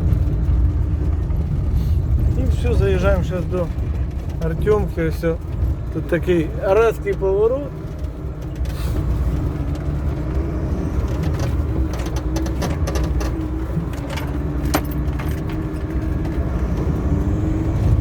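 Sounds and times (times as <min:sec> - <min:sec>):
car engine and road rumble: 0:00.0 - 0:18.0
small clicking rattles: 0:11.0 - 0:16.4.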